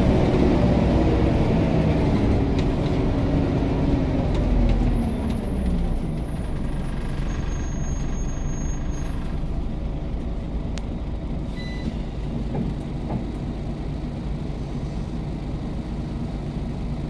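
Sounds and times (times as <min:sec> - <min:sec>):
bus engine droning: 0:00.0 - 0:17.0
short high beep: 0:11.6 - 0:12.0.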